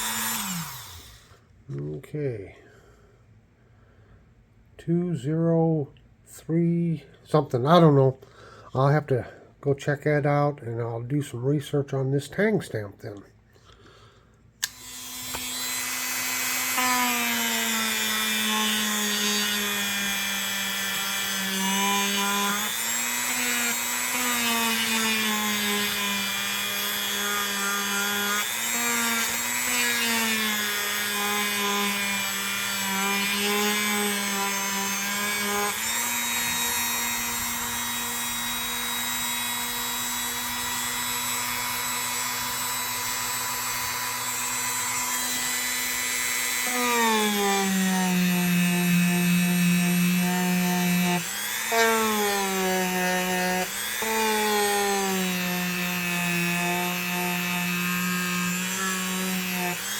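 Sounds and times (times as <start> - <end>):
small electric power tool running: 0.0 - 1.3, 14.6 - 59.9.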